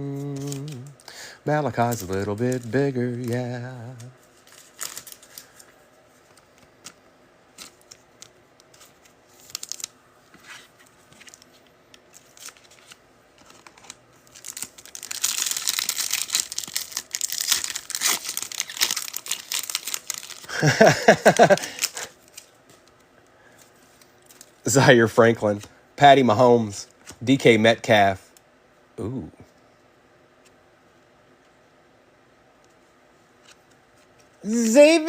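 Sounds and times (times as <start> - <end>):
foil wrapper tearing and crinkling: 0.1 - 1.0, 1.6 - 5.7, 9.4 - 9.9, 12.2 - 22.5.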